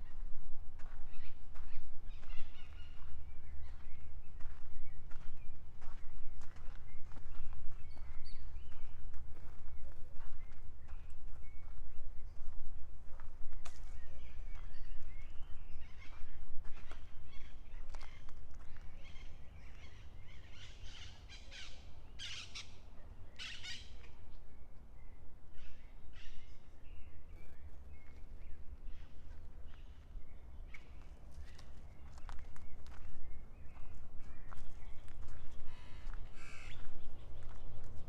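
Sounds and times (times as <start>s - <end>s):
footsteps on trail: 0.0s - 20.4s, 27.4s - 38.0s
birds chirping and calling: 19.0s - 24.1s.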